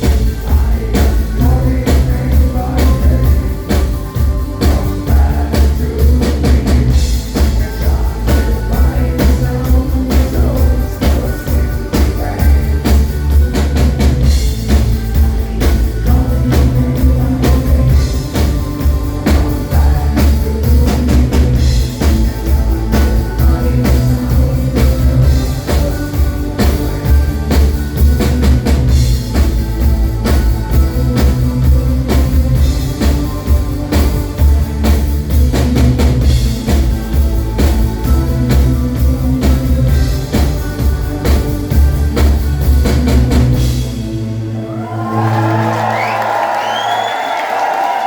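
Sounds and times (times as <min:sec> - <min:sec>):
steady drum beat: 0:00.0 - 0:44.0
band playing live music: 0:00.0 - 0:48.0
heavy bass: 0:00.0 - 0:48.0.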